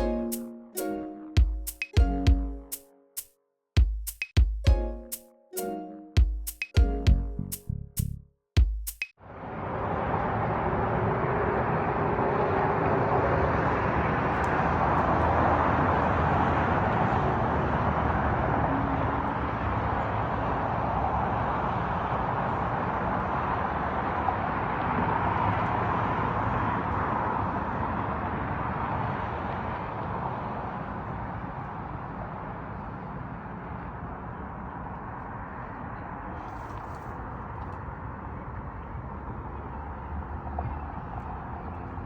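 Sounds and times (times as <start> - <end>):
steady outdoor rushing noise: 9.2 - 42.0.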